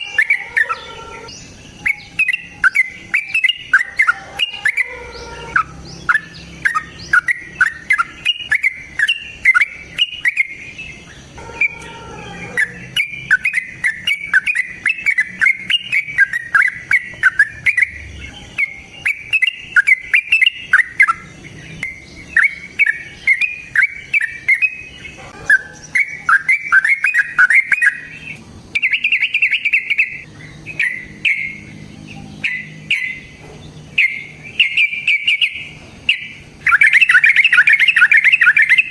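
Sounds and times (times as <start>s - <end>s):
lovebird chattering song: 0.0s - 38.9s.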